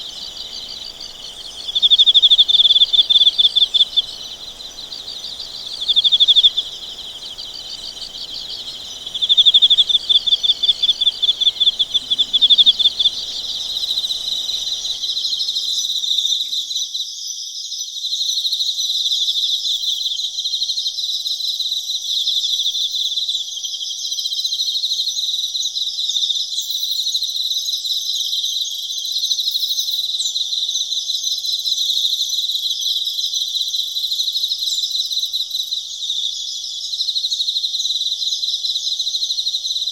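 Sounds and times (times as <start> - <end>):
insects chirping in pulsed trills: 0.0 - 17.0, 29.6 - 39.9.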